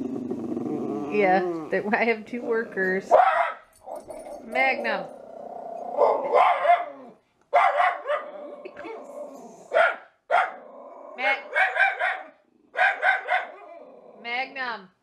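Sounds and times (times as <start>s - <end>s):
dog barking: 3.1s - 4.1s, 6.0s - 8.3s, 9.7s - 10.6s, 11.4s - 13.6s.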